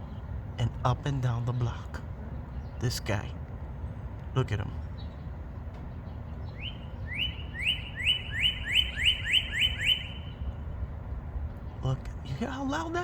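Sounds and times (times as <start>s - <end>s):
bird singing rising whistles: 6.5s - 10.4s.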